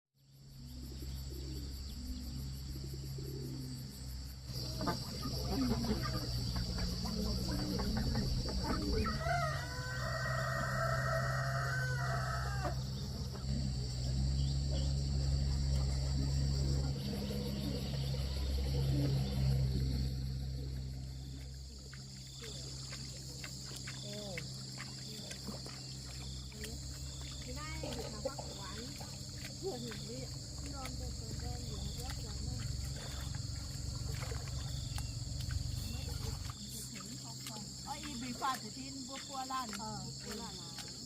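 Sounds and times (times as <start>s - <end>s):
high insect drone: 0.2s - 41.0s
low hum: 0.4s - 24.0s
rooster crowing: 8.8s - 13.0s.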